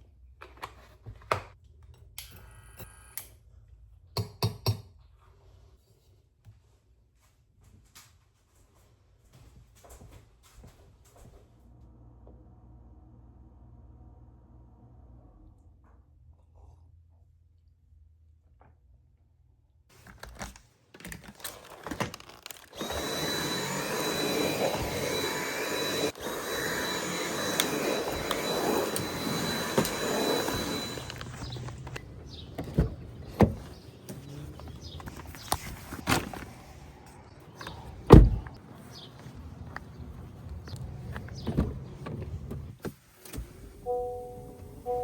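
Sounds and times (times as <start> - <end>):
small appliance motor running: 22.3 - 35.6.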